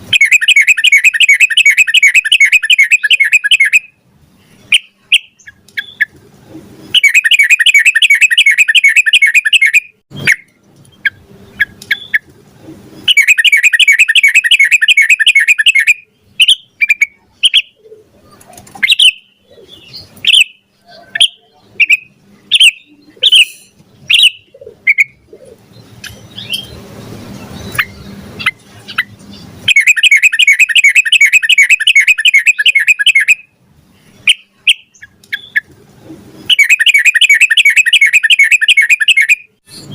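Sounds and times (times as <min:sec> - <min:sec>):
bulbul bubbling song: 0:00.0 - 0:03.9, 0:06.9 - 0:12.3, 0:13.0 - 0:17.8, 0:27.7 - 0:33.5, 0:36.5 - 0:39.9.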